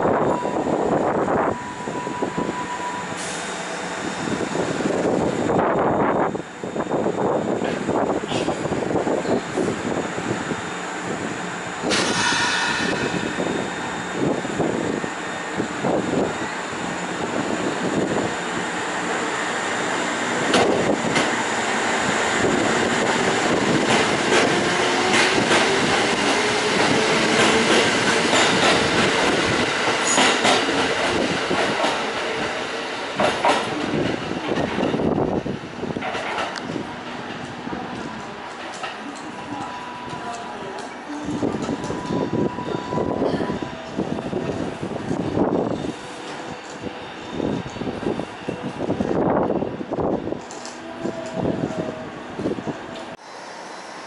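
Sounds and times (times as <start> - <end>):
train wheels clacking over rail joints: 23.2 - 32.5, 33.2 - 34.8.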